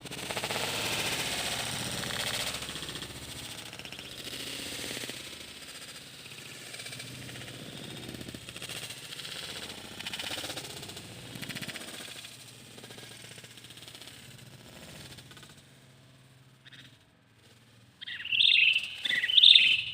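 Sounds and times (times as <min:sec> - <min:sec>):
bird rattling chatter: 0:00.2 - 0:15.5.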